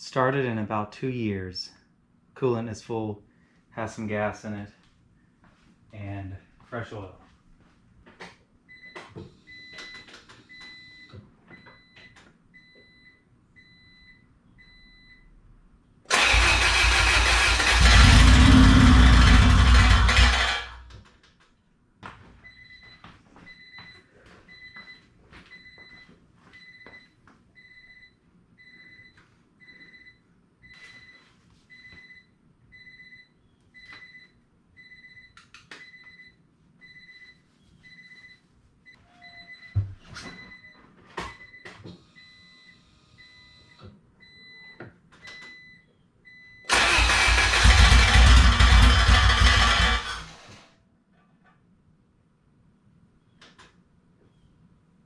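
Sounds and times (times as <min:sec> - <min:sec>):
loud burst of sound: 0:16.1 - 0:20.6
car engine running: 0:17.6 - 0:20.8, 0:47.3 - 0:50.2
electronic warning beep: 0:39.0 - 0:39.8.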